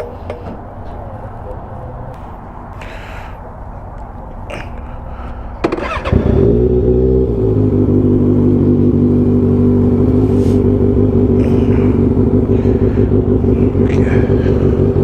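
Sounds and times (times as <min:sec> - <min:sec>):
motorcycle engine starting: 0:05.6 - 0:15.0.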